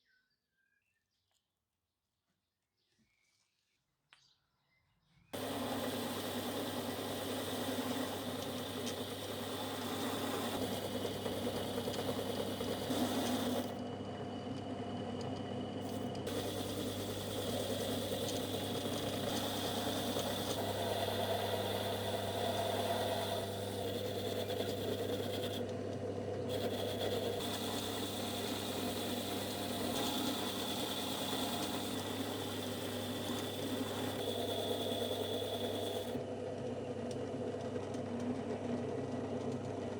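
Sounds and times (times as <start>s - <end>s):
electric power tool motor hum: 5.4s - 36.2s.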